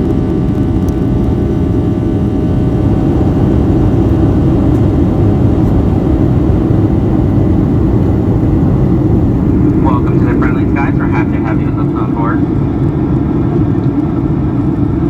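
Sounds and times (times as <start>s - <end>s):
jet engine cabin rumble: 0.0s - 15.0s
whining engine tones: 0.0s - 15.0s.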